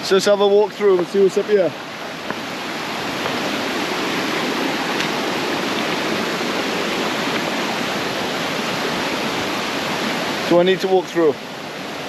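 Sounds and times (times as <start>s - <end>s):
mountain river rushing: 0.0s - 12.0s.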